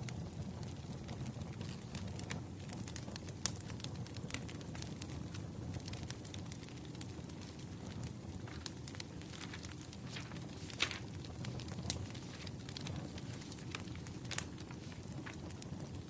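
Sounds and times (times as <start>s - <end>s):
wood fire crackling and popping: 0.0s - 16.0s
low steady rumble: 7.0s - 16.0s.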